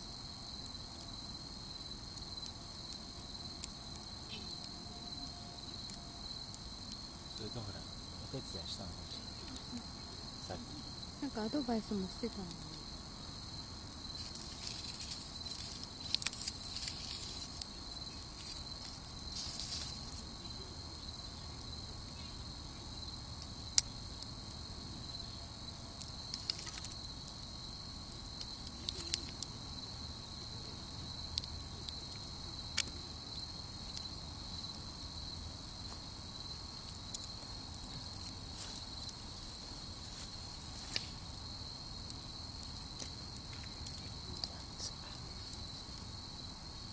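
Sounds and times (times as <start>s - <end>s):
campfire popping and crackling: 0.0s - 46.9s
crickets chirring: 0.0s - 46.9s.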